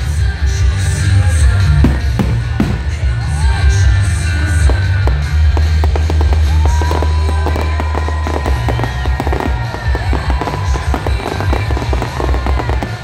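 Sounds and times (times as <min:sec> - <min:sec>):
fireworks crackling: 0:00.0 - 0:13.0
fireworks low booms: 0:01.7 - 0:03.2, 0:04.5 - 0:13.0.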